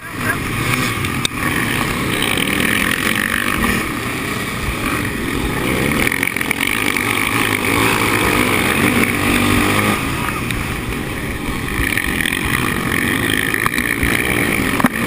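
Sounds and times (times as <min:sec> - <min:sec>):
racing motorcycle engines revving: 0:00.0 - 0:15.0.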